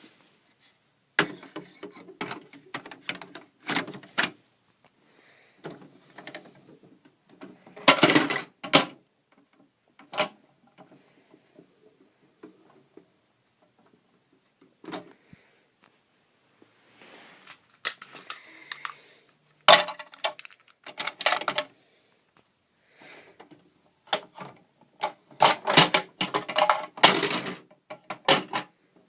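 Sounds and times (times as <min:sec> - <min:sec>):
hard objects clattering: 0:05.6 - 0:08.9, 0:17.4 - 0:21.7, 0:24.1 - 0:28.7.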